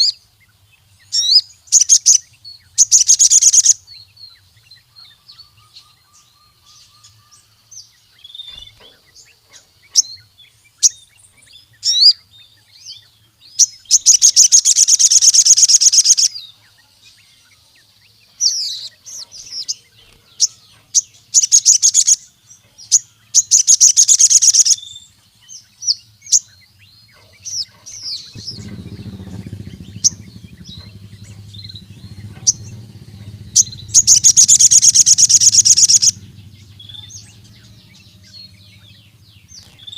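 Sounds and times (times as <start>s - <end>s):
sunbird chirps and trills: 0.0s - 39.9s
faint low hum: 27.1s - 39.9s.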